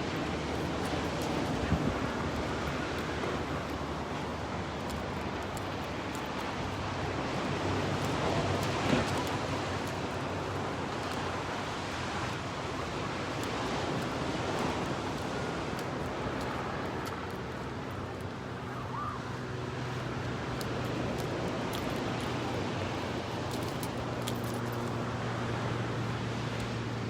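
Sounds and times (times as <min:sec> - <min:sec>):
wind on microphone: 0:00.0 - 0:19.4
ocean surf: 0:00.0 - 0:27.0.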